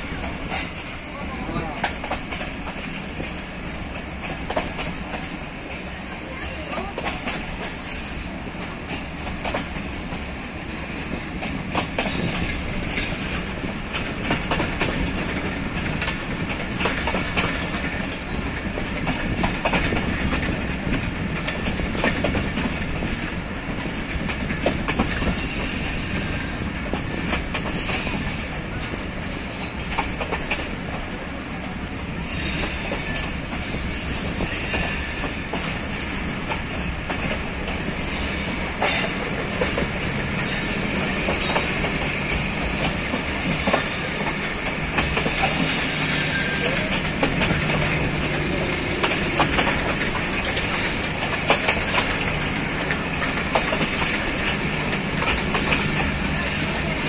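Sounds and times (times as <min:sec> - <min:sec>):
train wheels rumbling on rails: 0:00.0 - 0:57.0
track clicks and knocks: 0:46.6 - 0:56.4.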